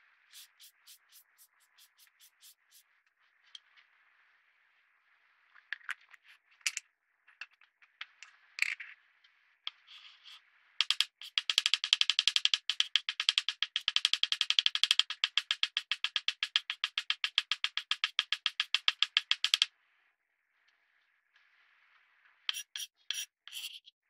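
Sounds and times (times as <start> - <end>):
small scrapes and crackles: 9.7 - 10.5
fast steady clicks: 10.8 - 19.7.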